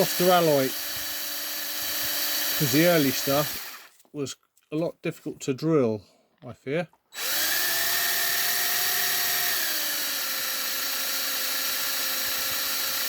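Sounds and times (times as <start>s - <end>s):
electric drill drilling into metal: 0.0s - 3.9s, 7.2s - 13.0s.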